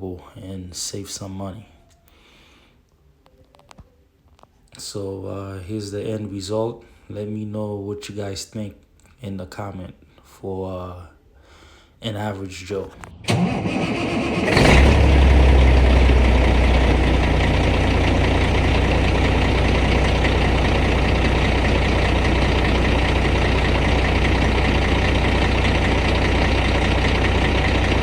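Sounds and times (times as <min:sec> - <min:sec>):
diesel engine idling: 0:12.9 - 0:28.0.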